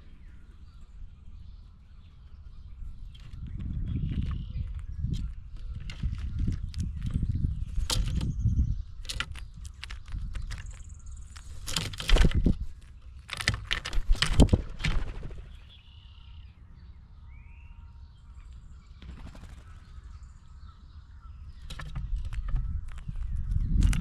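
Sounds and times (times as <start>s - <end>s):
sharp clicks knocks and scrapes: 3.2s - 8.4s, 9.0s - 15.2s, 21.6s - 24.0s.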